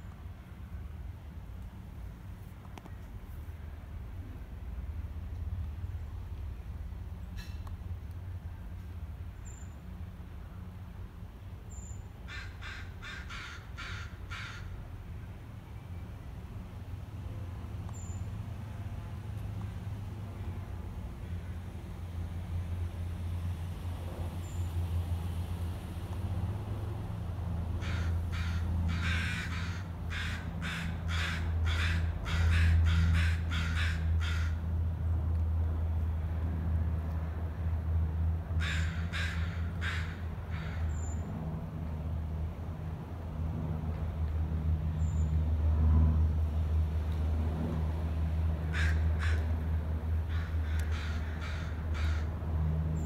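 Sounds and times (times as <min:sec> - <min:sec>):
bird cawing harshly: 0:12.3 - 0:14.7, 0:27.8 - 0:34.6, 0:38.6 - 0:41.0, 0:48.7 - 0:49.5, 0:50.3 - 0:52.3.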